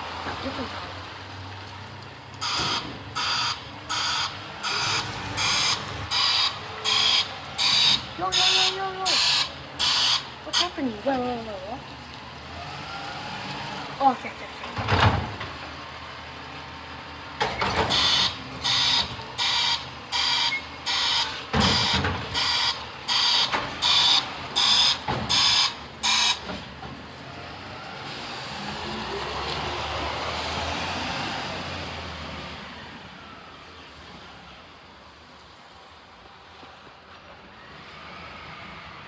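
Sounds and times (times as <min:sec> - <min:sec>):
truck engine: 0:00.0 - 0:39.0
truck warning beeper: 0:02.3 - 0:11.5, 0:17.5 - 0:26.6.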